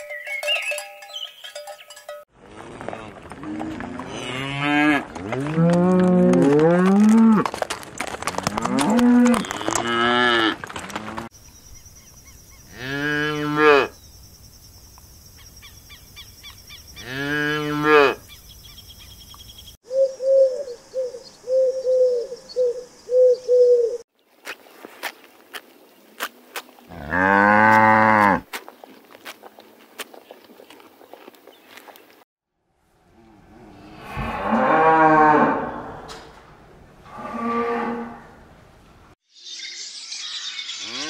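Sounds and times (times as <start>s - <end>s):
cows mooing: 2.5s - 7.5s, 8.3s - 11.3s, 17.0s - 18.2s, 26.9s - 28.4s, 33.3s - 36.4s, 37.0s - 38.4s.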